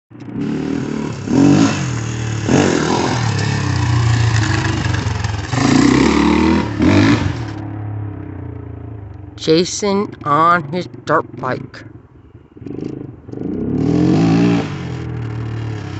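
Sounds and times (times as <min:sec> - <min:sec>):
dirt bike engine revving: 0:00.2 - 0:07.7, 0:12.6 - 0:15.9.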